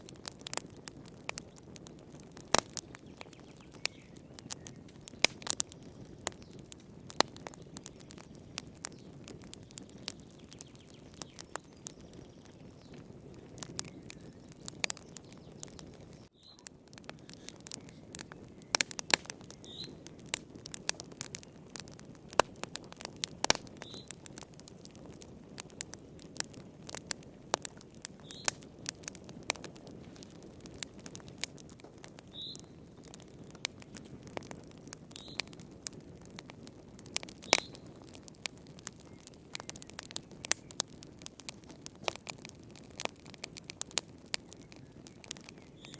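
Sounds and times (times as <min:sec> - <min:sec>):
wood fire crackling: 0:00.0 - 0:45.9
faint high chirp: 0:16.3 - 0:16.7.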